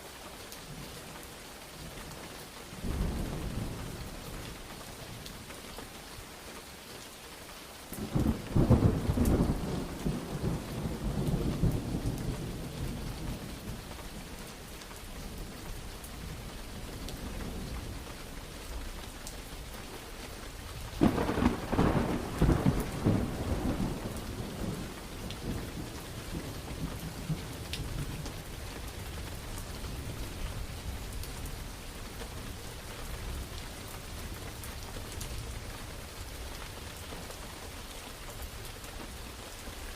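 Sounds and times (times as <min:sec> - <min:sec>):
steady rain: 0:00.0 - 0:39.9
thunder rumbling: 0:02.8 - 0:04.5, 0:08.0 - 0:14.2, 0:20.7 - 0:36.0.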